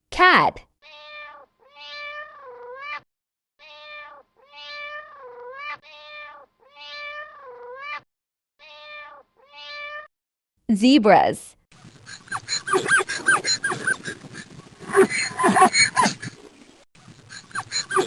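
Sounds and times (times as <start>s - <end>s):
cat meowing: 0.8s - 3.0s, 3.6s - 8.0s, 8.6s - 10.1s.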